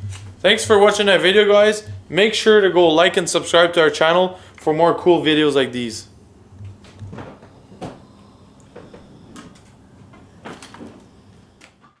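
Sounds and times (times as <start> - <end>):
low steady hum: 0.0 - 11.8
light knocks and clicks: 6.6 - 11.1.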